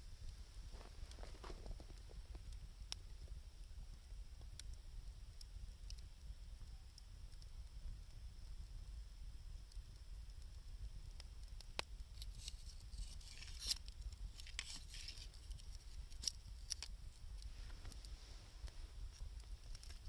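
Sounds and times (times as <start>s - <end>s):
wood fire crackling: 0.0s - 20.0s
low steady rumble: 14.0s - 20.0s.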